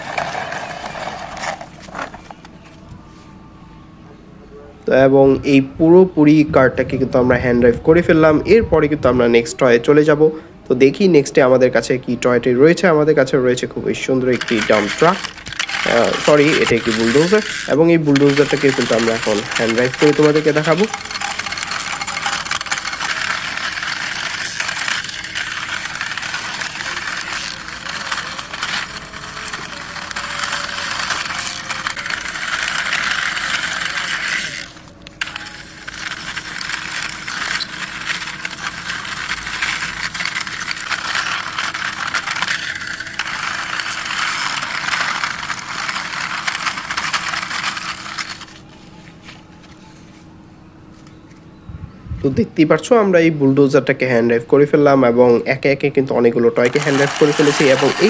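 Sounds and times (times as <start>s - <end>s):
toy bulldozer clattering: 0.0s - 2.8s, 13.9s - 48.8s, 56.5s - 58.0s.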